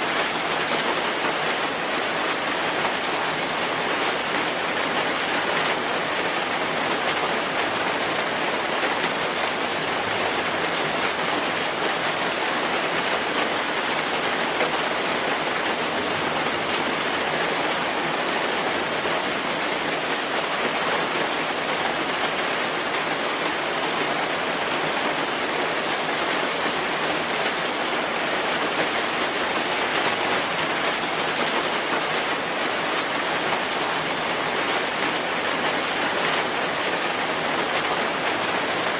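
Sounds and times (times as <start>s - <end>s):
rain pattering on a surface: 0.0s - 38.9s.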